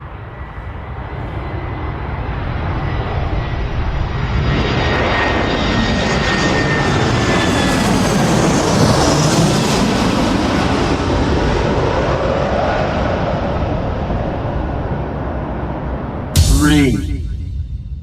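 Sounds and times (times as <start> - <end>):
jet aircraft engine whine: 0.0 - 10.0.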